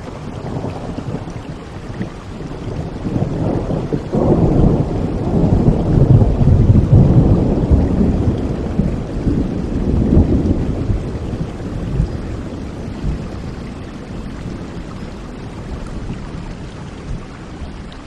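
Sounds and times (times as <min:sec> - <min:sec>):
thunder rumbling: 0:00.0 - 0:17.9
heavy rain: 0:00.0 - 0:18.0.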